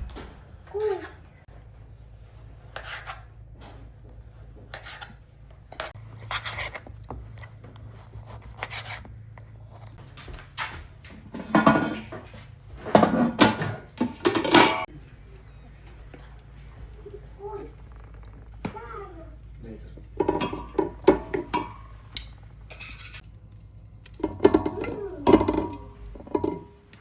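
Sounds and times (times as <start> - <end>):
dishes and pots clattering: 10.6 - 14.9, 20.0 - 23.2, 24.1 - 27.0.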